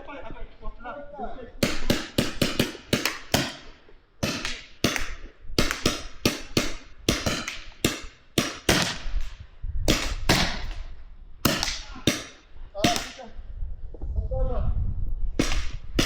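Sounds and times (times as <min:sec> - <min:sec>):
paintball markers firing: 0:01.6 - 0:10.8, 0:11.5 - 0:13.2, 0:15.4 - 0:16.0.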